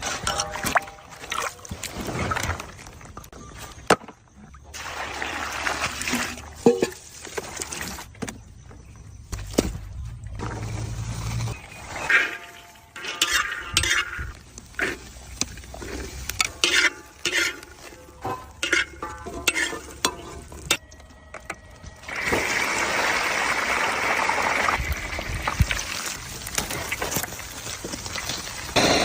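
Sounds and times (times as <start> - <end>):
utensil stirring and scraping pan: 11.6 - 20.8.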